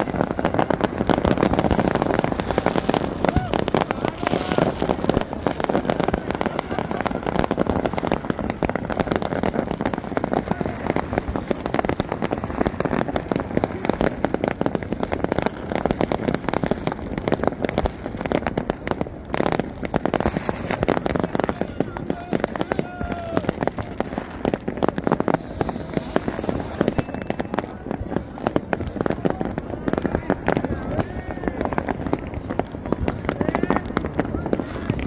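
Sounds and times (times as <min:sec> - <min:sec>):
firecrackers going off: 0:00.0 - 0:35.0
voices: 0:20.9 - 0:24.3, 0:26.9 - 0:35.0.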